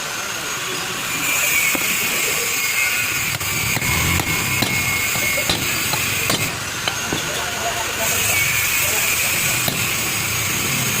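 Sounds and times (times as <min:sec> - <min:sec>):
electric power tool whining: 0:03.2 - 0:07.0.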